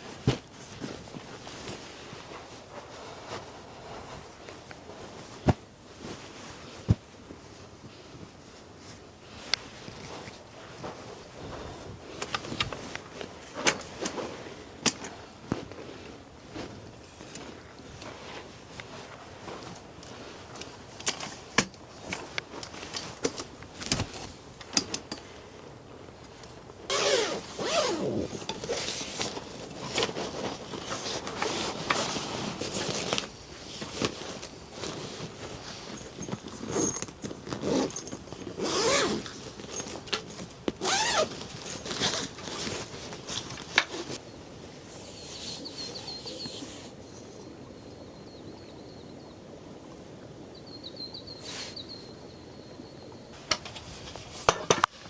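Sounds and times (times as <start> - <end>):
zip and fabric rustling: 26.9 - 44.2, 44.8 - 47.3.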